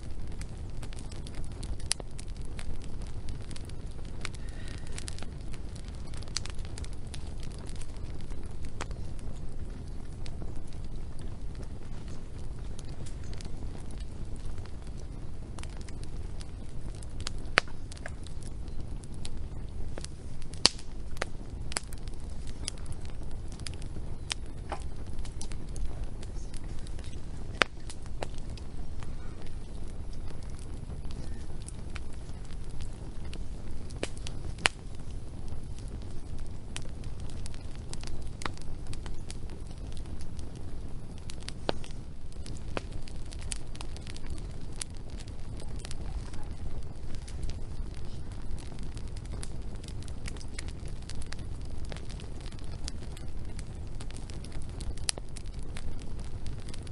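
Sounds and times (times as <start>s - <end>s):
low rumble of flames: 0.0s - 56.9s
wood fire crackling: 0.0s - 56.9s.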